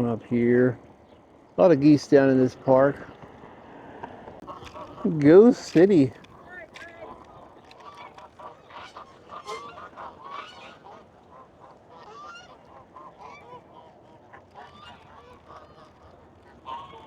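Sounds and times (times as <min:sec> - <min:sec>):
geese honking: 0:04.4 - 0:17.0.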